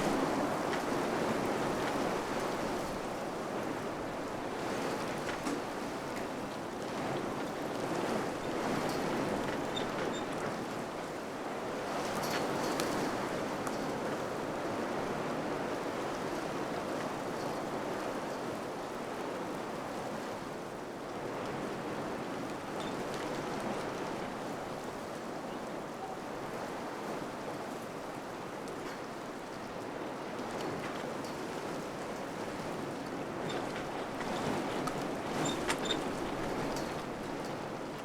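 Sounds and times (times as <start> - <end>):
wind gusts: 0.0 - 6.1.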